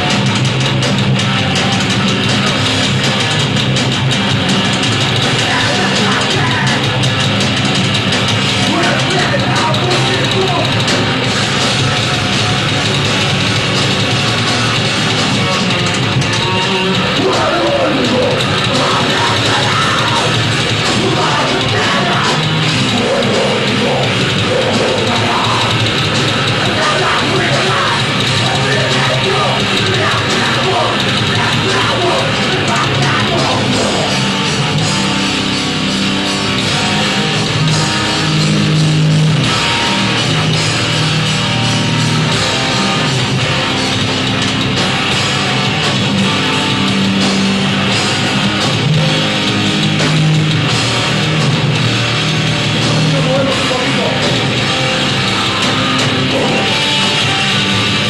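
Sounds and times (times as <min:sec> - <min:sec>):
distorted electric guitars: 0:00.0 - 0:58.0
drum kit: 0:00.0 - 0:58.0
person singing: 0:26.6 - 0:34.2.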